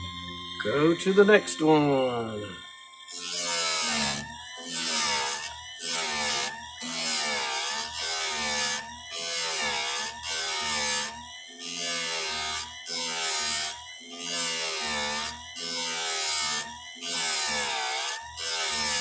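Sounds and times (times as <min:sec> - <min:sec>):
motor hum: 0:00.0 - 0:06.8.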